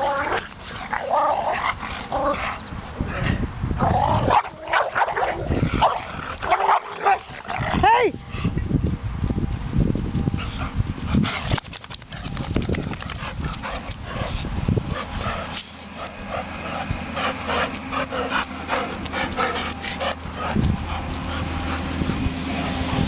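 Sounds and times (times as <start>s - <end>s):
dogs barking and yipping: 3.9s - 7.8s, 10.3s - 23.0s.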